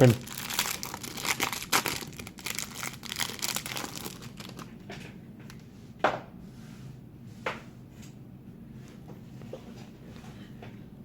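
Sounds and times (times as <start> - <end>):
plastic wrapper crinkling and tearing: 0.0 - 4.8.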